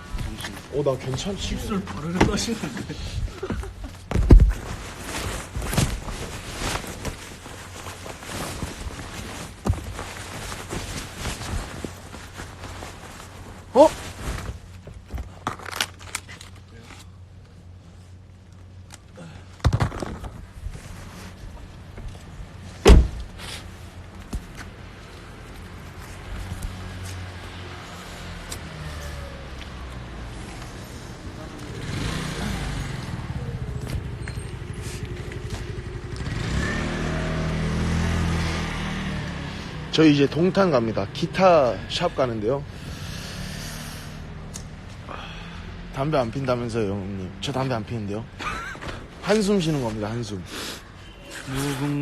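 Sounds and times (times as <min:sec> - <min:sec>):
road rumble: 0:00.0 - 0:52.0
handling clicks and rustles: 0:00.1 - 0:27.5.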